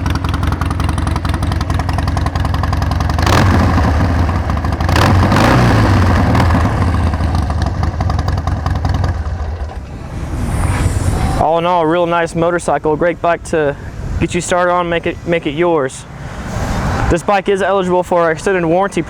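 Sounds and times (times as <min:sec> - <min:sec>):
motorcycle engine idling: 0:00.0 - 0:10.1
engine throttle blips: 0:00.0 - 0:19.0.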